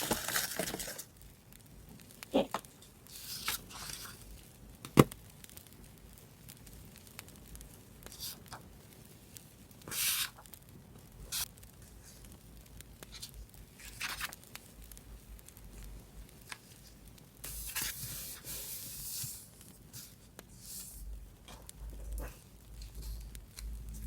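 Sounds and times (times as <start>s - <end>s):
paper rustling and tearing: 0.0s - 1.1s, 3.1s - 4.2s, 9.9s - 10.4s, 13.1s - 14.4s, 16.5s - 21.0s.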